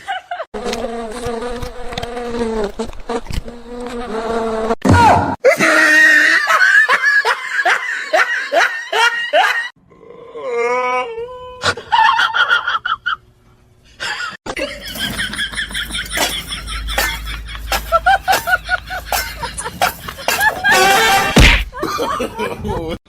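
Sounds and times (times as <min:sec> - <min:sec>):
person laughing hard: 0:05.4 - 0:09.7, 0:14.0 - 0:23.0.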